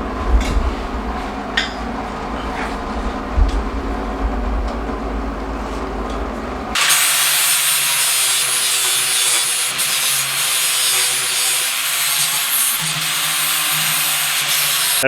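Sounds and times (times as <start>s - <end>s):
low rumble: 0.0s - 6.8s
abrasive tool grinding steel: 6.8s - 15.0s.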